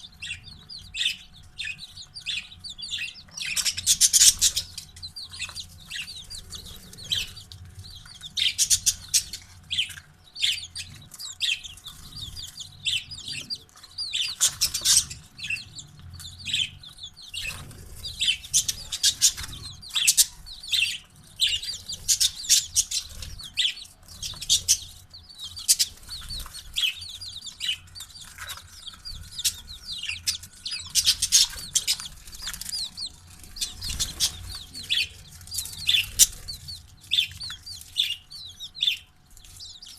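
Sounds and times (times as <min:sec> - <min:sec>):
chicks and parrots chirping: 0:00.0 - 0:39.9.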